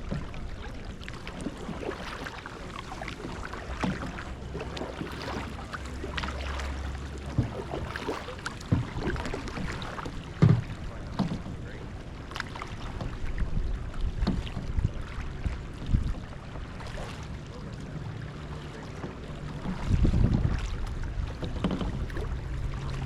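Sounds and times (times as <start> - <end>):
paddle strokes splashing water: 0.0 - 23.0
sharp knocks on kayak: 3.6 - 5.6, 7.3 - 11.5, 21.4 - 22.3.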